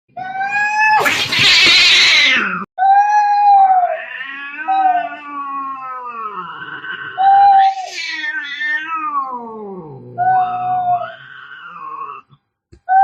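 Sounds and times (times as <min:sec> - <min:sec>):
cats yowling: 0:00.1 - 0:13.0
cat hissing: 0:01.0 - 0:02.6, 0:06.2 - 0:09.0.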